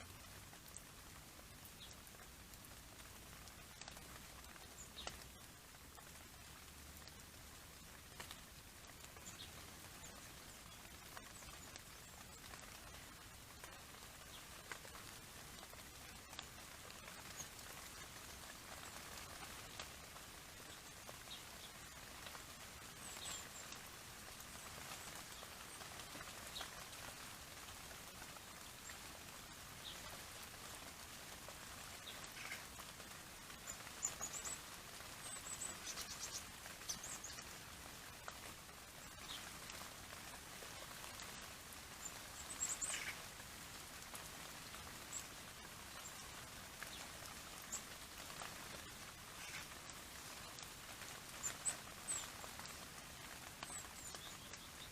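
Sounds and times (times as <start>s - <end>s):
steady hiss: 0.0s - 54.9s
faint ticks: 1.6s - 7.3s, 8.0s - 20.0s.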